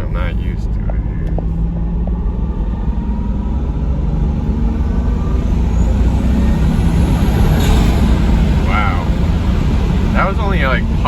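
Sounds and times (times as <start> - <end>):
car engine pulling: 0.0 - 11.0
road rumble: 0.0 - 11.0.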